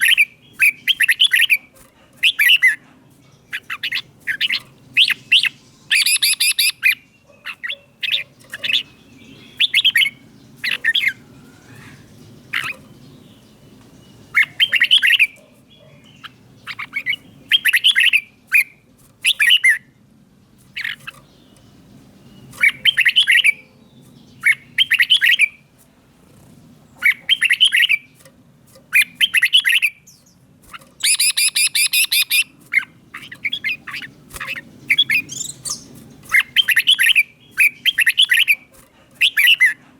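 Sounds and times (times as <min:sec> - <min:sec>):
bird singing whistled phrases: 0:03.6 - 0:07.0, 0:09.4 - 0:10.2, 0:22.6 - 0:23.6, 0:24.4 - 0:25.6, 0:27.2 - 0:28.0, 0:29.0 - 0:30.2, 0:31.0 - 0:32.5, 0:33.4 - 0:38.6.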